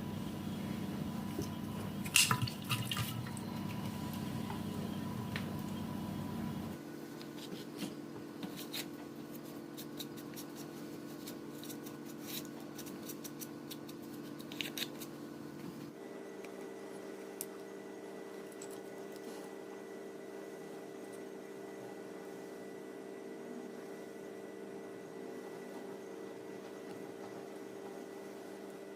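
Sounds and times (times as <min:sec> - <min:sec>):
steady hum: 0:00.0 - 0:28.9.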